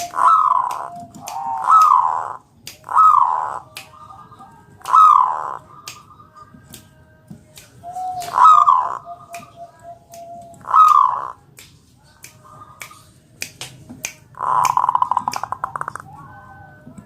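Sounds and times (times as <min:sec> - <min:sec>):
dove cooing: 0:00.0 - 0:06.2, 0:08.0 - 0:11.4, 0:14.4 - 0:16.8.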